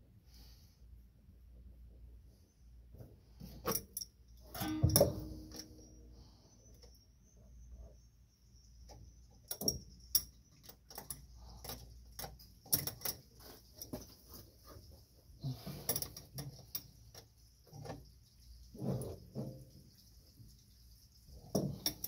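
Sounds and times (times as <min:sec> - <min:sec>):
hand tools clicking and knocking: 0:03.7 - 0:05.8.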